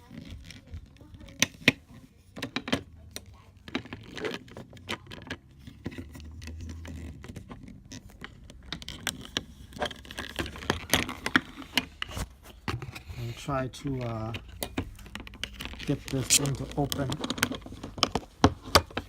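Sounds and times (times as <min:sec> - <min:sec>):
scissors scraping against foil: 0:16.1 - 0:16.6.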